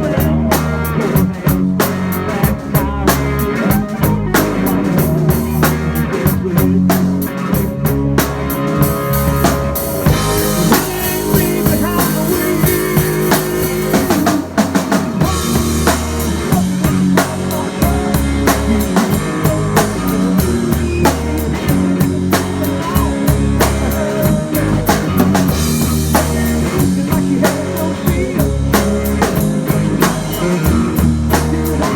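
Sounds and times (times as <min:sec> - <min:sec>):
drum kit kick and snare: 0:00.0 - 0:31.9
live band playing: 0:00.0 - 0:31.9
sustained bass line: 0:00.0 - 0:31.9.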